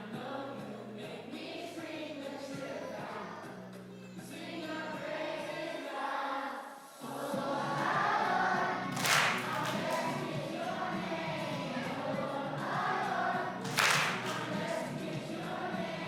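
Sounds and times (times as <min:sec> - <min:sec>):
group of voices singing: 0:00.0 - 0:16.0
music backing track: 0:07.0 - 0:16.0.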